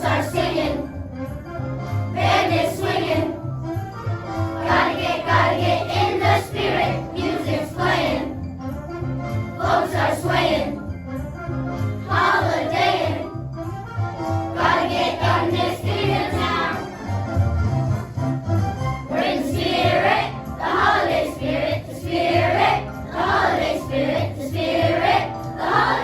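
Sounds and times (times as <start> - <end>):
choir singing: 0.0 - 0.9, 2.1 - 3.4, 4.6 - 8.4, 9.6 - 10.8, 12.0 - 13.4, 14.5 - 17.0, 19.1 - 26.0
choir singing a holiday song: 0.0 - 11.2, 11.8 - 17.3, 19.0 - 26.0.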